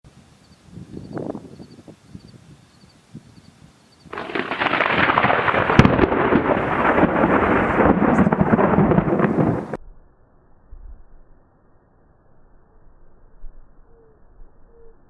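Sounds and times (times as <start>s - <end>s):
thunderstorm rushing and crackling: 4.1s - 9.8s.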